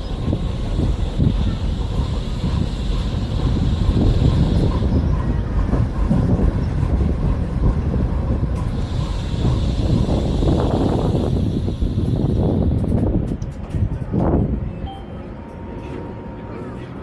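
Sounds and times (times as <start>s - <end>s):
tram wheels rumbling on rails: 0.0s - 17.0s.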